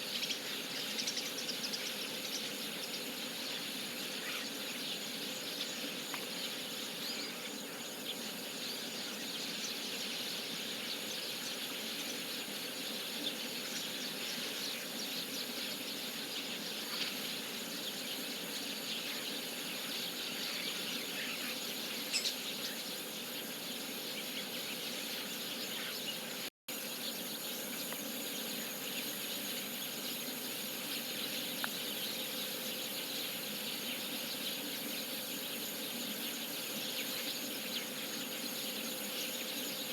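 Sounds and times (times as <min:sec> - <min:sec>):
flock of starlings chattering: 0:00.0 - 0:39.9.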